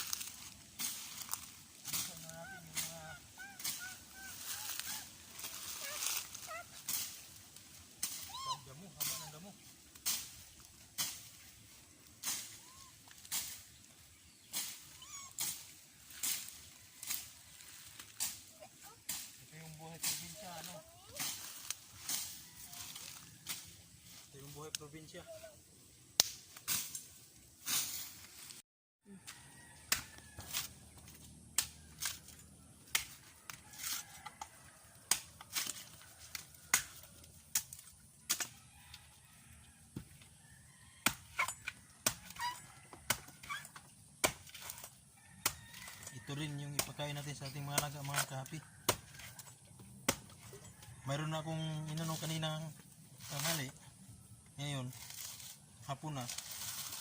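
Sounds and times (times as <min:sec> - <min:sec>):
sharp knocks and snaps: 0:26.2 - 0:26.7, 0:32.9 - 0:33.6.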